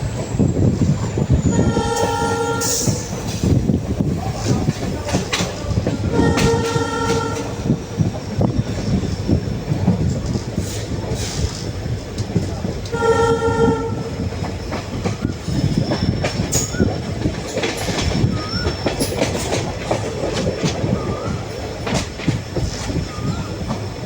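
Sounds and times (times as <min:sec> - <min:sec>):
train rumble: 0:00.0 - 0:24.0
train wheels clattering: 0:00.0 - 0:24.0
locomotive horn blast: 0:01.4 - 0:03.2, 0:06.0 - 0:07.7, 0:12.9 - 0:14.2.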